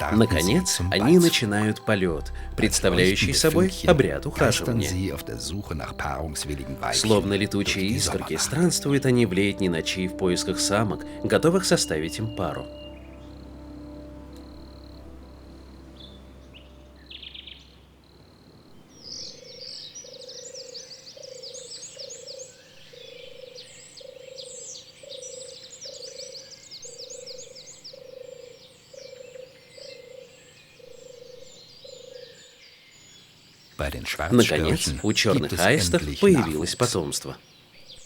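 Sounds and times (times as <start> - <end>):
frog calling low notes: 0.0 - 18.0
soft background music: 0.0 - 18.1, 33.8 - 37.3.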